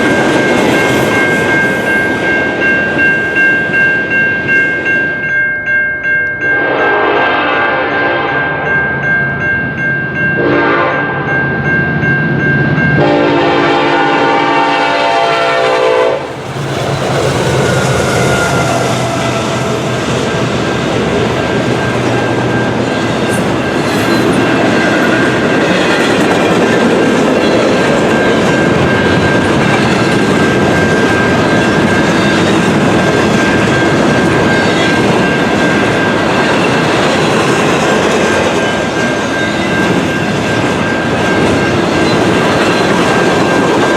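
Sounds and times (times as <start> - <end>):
train cars rumbling past: 6.4 - 43.9
locomotive air horn: 6.6 - 8.7, 10.4 - 11.1, 13.0 - 16.3, 17.9 - 20.0.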